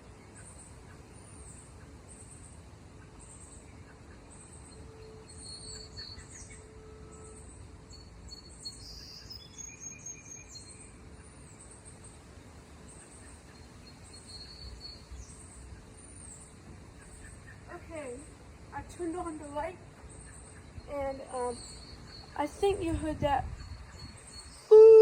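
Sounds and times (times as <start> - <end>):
birds chirping: 0.0 - 25.0
insects: 0.0 - 25.0
steady low rumble: 10.8 - 24.7.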